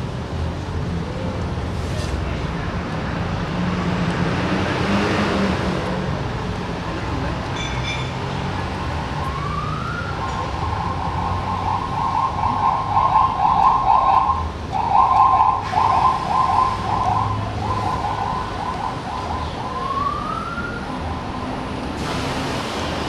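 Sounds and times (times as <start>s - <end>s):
siren rising wail: 9.1s - 21.4s
siren wavering tone: 9.3s - 21.2s.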